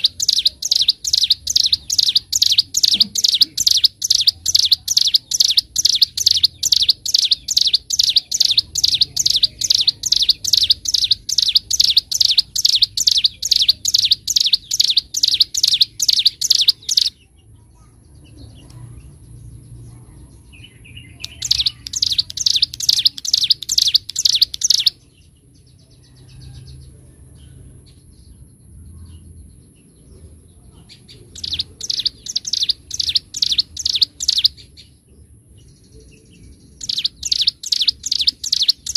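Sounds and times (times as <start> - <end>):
bird singing fast high notes: 0.0 - 17.1.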